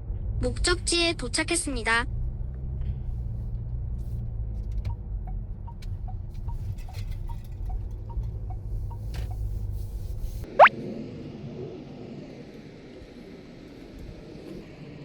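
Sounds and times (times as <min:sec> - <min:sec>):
car engine and road rumble: 0:00.0 - 0:10.5
turn signal ticking: 0:04.3 - 0:09.7.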